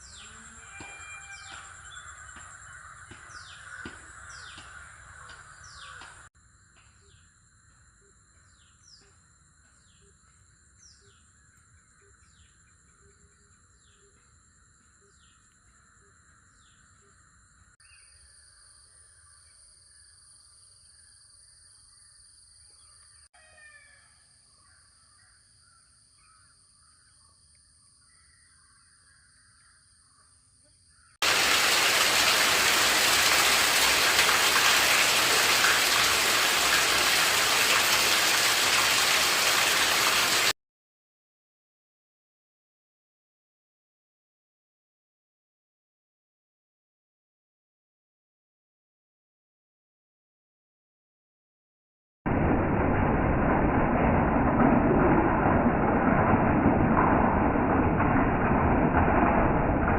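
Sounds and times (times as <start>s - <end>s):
birds calling: 0.0s - 6.3s, 30.9s - 40.5s
heavy rain: 31.2s - 40.6s, 52.3s - 59.9s.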